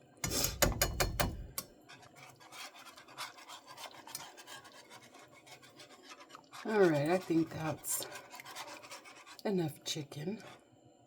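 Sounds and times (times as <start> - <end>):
utensil scraping a container: 1.9 - 9.5.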